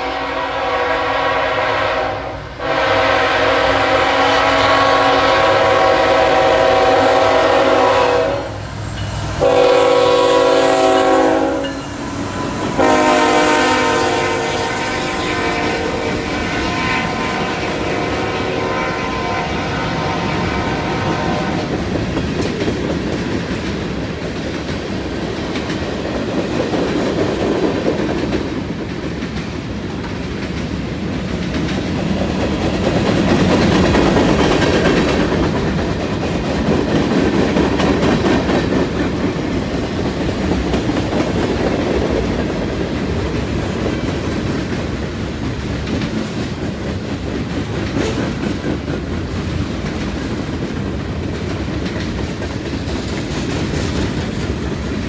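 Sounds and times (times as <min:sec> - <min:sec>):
locomotive horn blast: 0:00.0 - 0:21.8
freight train wheels clattering: 0:00.0 - 0:55.0.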